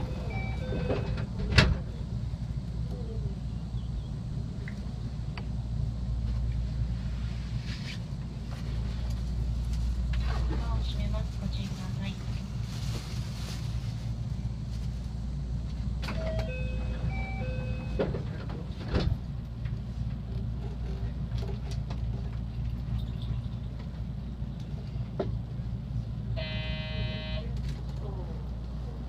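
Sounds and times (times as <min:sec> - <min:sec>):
electric train rumble: 0:00.0 - 0:29.0.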